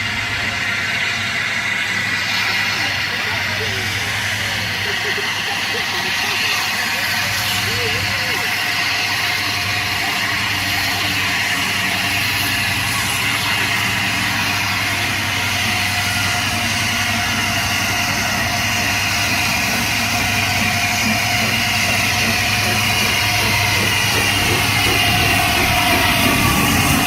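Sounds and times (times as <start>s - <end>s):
locomotives droning and hissing: 0.0s - 27.0s.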